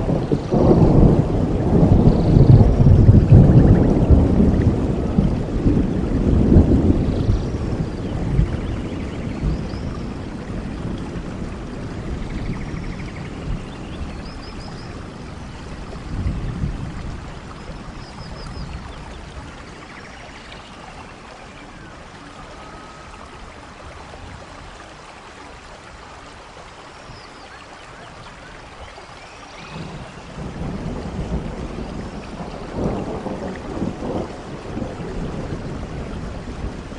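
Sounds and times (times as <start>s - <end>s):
thunder rumbling: 0.0s - 20.0s, 29.6s - 36.9s
steady rain: 0.0s - 36.9s.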